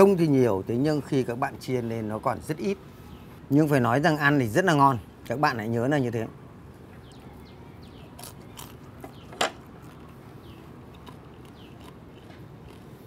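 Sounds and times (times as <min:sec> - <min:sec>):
crunchy food being chewed: 0:08.0 - 0:13.0.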